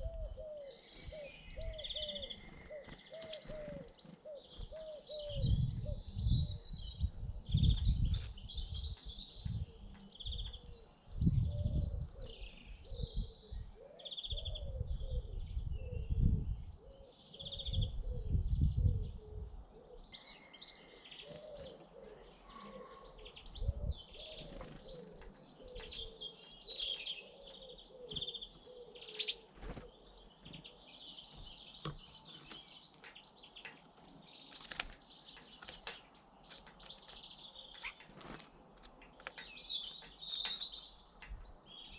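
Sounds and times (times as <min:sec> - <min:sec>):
pigeon cooing: 0:00.0 - 0:06.0, 0:20.8 - 0:26.2, 0:27.2 - 0:30.0
small birds chirping: 0:00.0 - 0:41.9.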